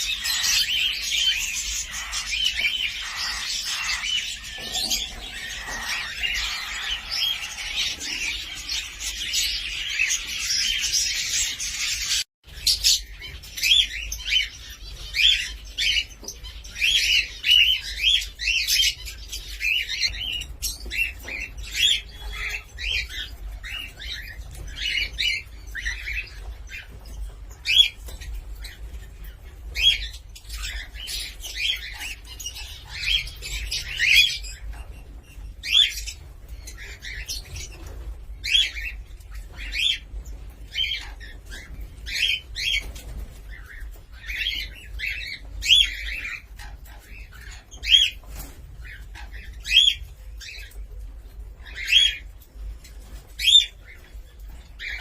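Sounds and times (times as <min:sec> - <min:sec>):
cockatiel chirping and whistling: 0:00.1 - 0:04.2.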